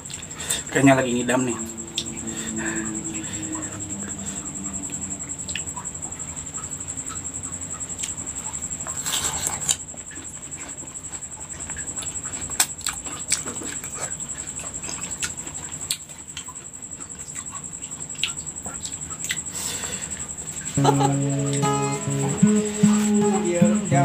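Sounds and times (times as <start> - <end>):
thin high-pitched whine: 0.0 - 8.9, 20.7 - 24.0
person chewing crunchy fruit: 8.8 - 19.6.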